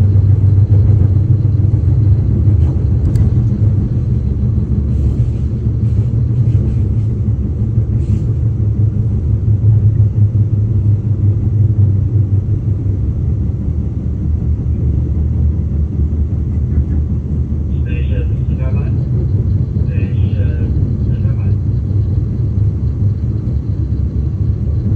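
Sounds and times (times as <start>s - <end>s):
train rumbling on track: 0.0s - 24.9s.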